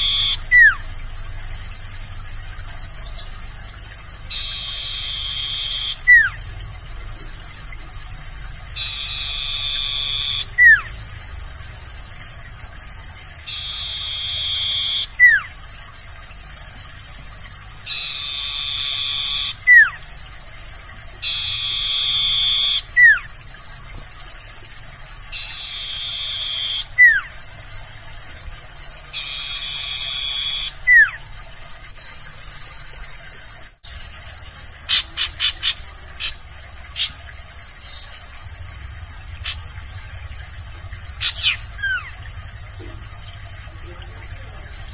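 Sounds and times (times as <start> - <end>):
bird buzzing trill with whistle: 0.0 - 0.9, 4.2 - 6.6, 8.7 - 10.9, 13.4 - 15.6, 17.8 - 20.0, 21.2 - 23.3, 25.3 - 27.3, 29.1 - 31.2.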